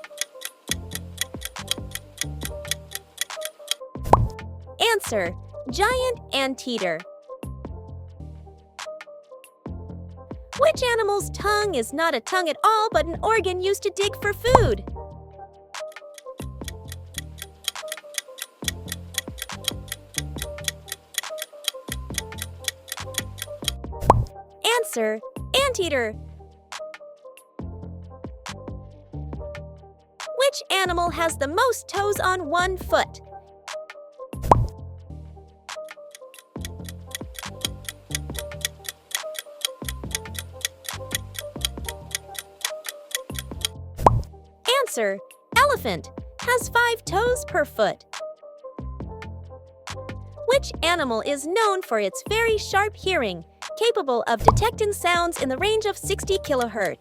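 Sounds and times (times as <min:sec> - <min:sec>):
clock ticking: 0:00.0 - 0:03.8, 0:15.9 - 0:23.8, 0:36.1 - 0:44.2
light background music: 0:00.0 - 0:57.0.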